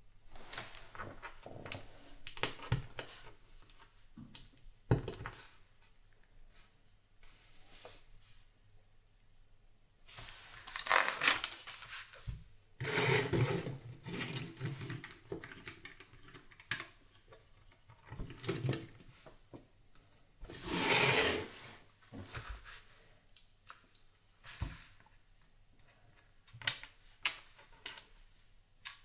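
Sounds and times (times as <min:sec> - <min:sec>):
plastic pieces rustling and sliding: 0:10.6 - 0:12.0.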